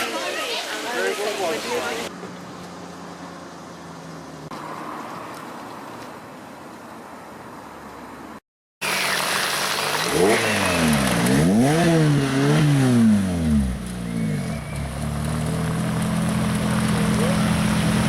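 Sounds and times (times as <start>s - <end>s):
sports car engine revving: 9.7s - 18.0s.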